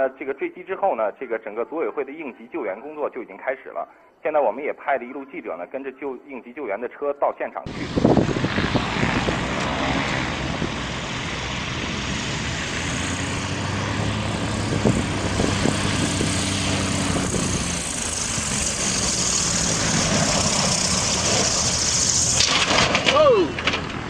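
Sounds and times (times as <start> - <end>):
aircraft engine drone: 7.7 - 24.0.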